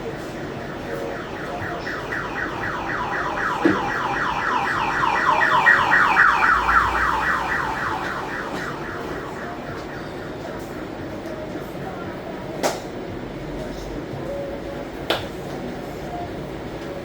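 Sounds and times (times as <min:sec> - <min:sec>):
electronic siren yelping: 0:00.0 - 0:11.8.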